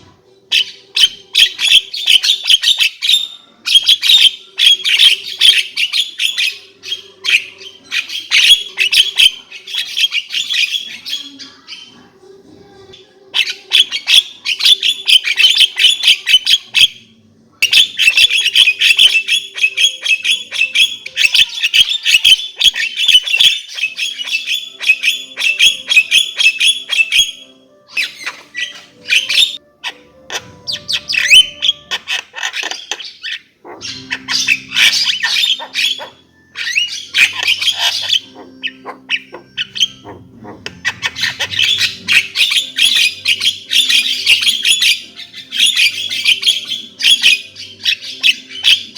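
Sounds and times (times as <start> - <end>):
myna harsh chattering and squawks: 28.0 - 48.9.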